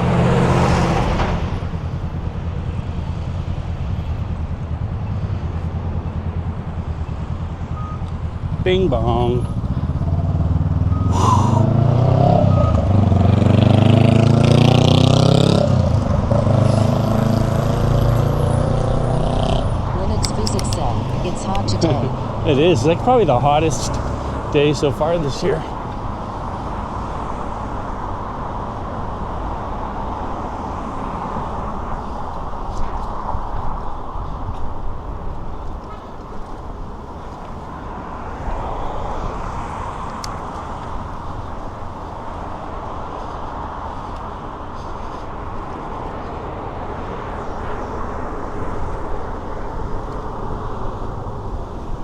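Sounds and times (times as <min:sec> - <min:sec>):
city traffic noise: 0:00.0 - 0:52.0
road noise while cycling: 0:00.0 - 0:52.0
wind rushing: 0:09.6 - 0:35.8.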